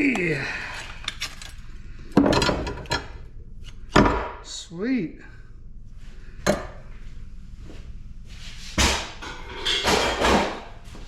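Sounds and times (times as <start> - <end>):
scrap metal knocking and clanking: 9.2 - 10.6.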